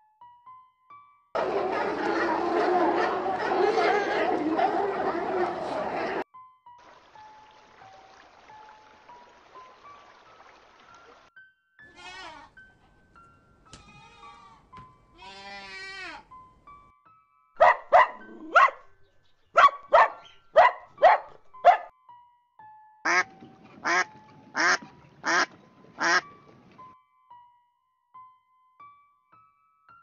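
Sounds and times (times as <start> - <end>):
soft background music: 0.0 - 30.0
duck quacking: 1.4 - 6.2, 23.1 - 26.2
dog barking: 17.6 - 19.0, 19.6 - 21.9.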